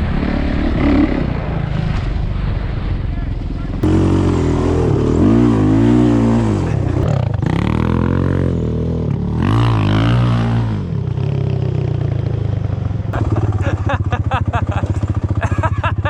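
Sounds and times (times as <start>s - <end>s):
off-road vehicle engine revving: 3.8s - 11.9s.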